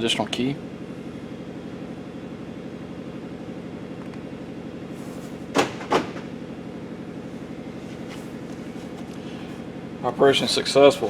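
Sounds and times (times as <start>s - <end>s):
sharp knocks: 5.5s - 6.4s.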